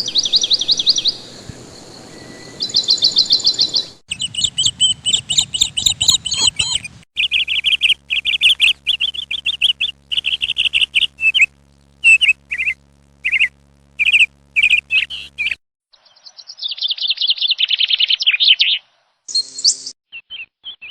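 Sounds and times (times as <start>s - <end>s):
small birds chirping: 0.0s - 20.9s
faint steady hum: 4.8s - 15.6s.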